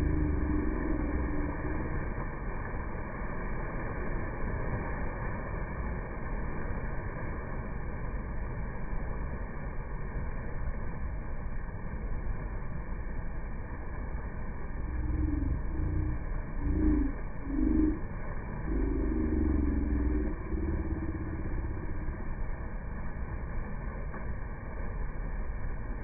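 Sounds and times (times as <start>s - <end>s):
short low tone: 0.0s - 2.0s, 14.8s - 22.4s
waterfall rushing: 0.0s - 4.3s, 14.7s - 23.1s.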